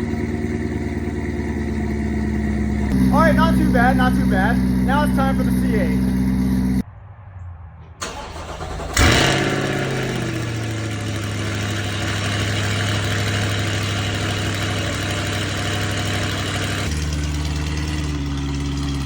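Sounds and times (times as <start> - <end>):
car engine revving and idling: 0.0 - 6.9, 8.0 - 19.0
starter motor cranking: 8.0 - 19.0.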